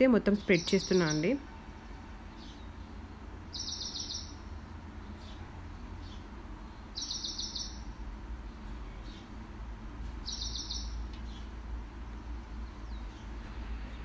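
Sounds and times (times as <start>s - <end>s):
low steady hum: 0.0s - 14.0s
bird trilled chirp: 0.4s - 1.4s, 3.5s - 4.4s, 7.0s - 7.9s, 10.2s - 11.4s.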